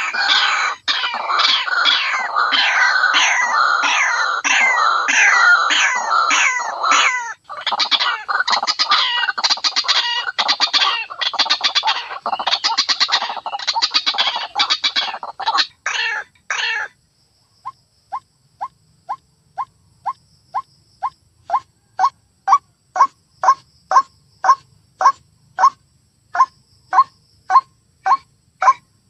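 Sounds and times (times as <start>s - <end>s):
waterhen calling: 0.0s - 16.9s.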